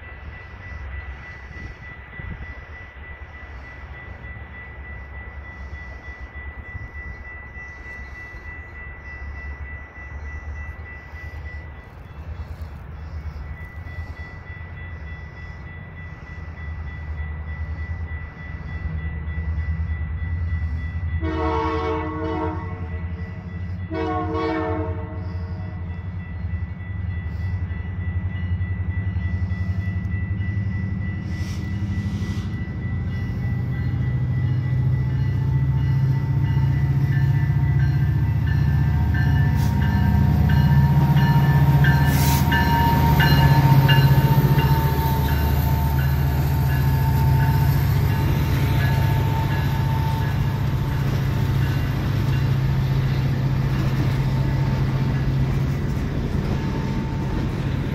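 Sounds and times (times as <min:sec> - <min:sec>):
diesel locomotive rumble: 0:00.0 - 0:57.9
train horn blasts: 0:21.2 - 0:25.8, 0:38.6 - 0:51.0.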